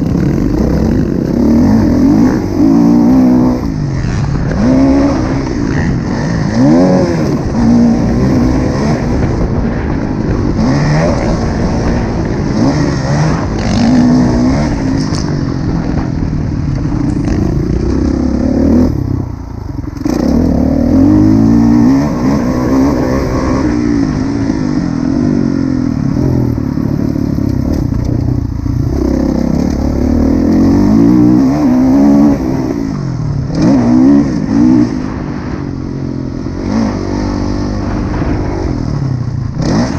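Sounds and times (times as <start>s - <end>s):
motocross engine revving: 0.0s - 35.6s, 36.5s - 39.9s.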